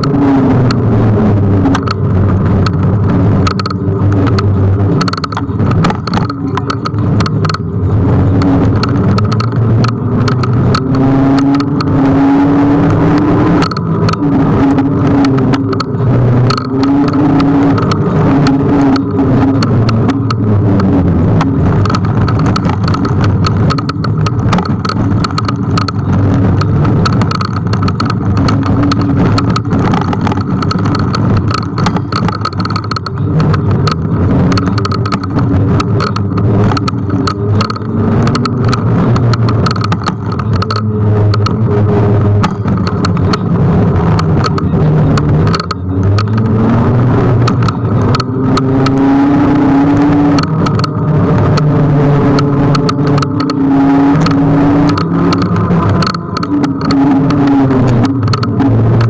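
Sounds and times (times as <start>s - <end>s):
scooter rapid knocks: 0.0s - 12.0s, 12.7s - 59.0s
cars on road: 0.0s - 59.0s
wind buffeting microphone: 0.0s - 59.0s.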